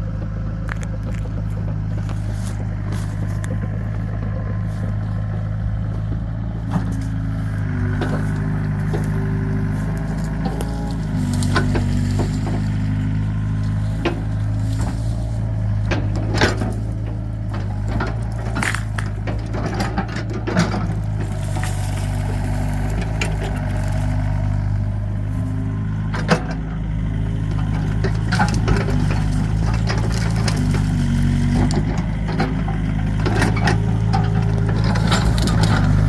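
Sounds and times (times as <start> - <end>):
excavator diesel engine running: 0.0 - 36.0
sharp cracks and knocks: 7.8 - 24.8.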